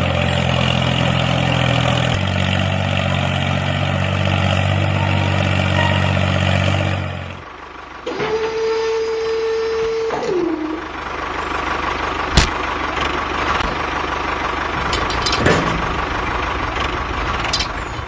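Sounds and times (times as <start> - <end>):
sharp click: 12.4 - 12.6.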